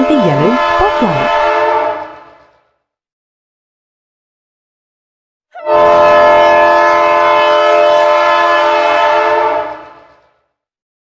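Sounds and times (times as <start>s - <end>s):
train horn blast: 0.0s - 2.5s, 5.6s - 10.3s.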